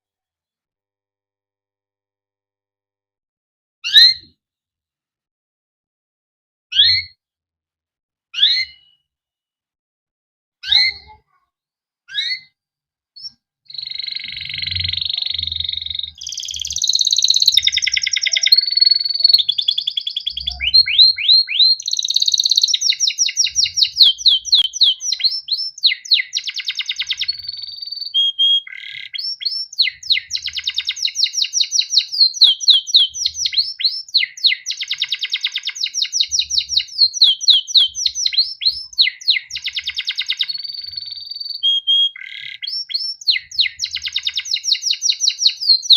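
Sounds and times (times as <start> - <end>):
canary singing: 8.4 - 9.0, 12.1 - 12.5, 13.2 - 45.9.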